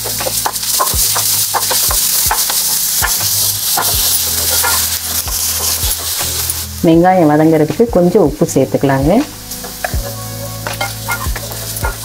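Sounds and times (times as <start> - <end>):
spatula scraping a pan: 0.0 - 6.8, 9.5 - 12.0
onions sizzling in hot oil: 0.0 - 12.0.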